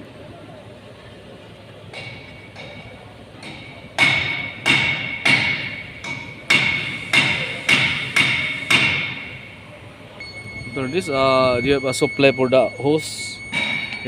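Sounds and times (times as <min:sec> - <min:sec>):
sharp metallic taps: 0:01.9 - 0:09.3.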